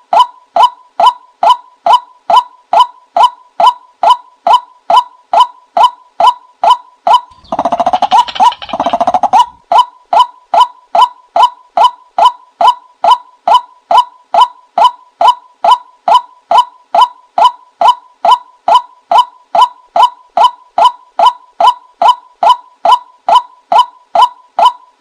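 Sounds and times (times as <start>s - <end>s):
bird call decoy recording: 7.1s - 10.0s.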